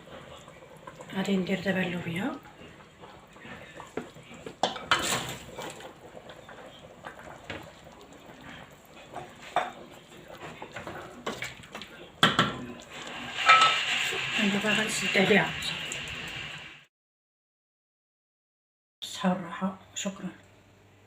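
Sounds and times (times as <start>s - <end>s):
cooking pot and utensils clinking: 1.8s - 15.4s.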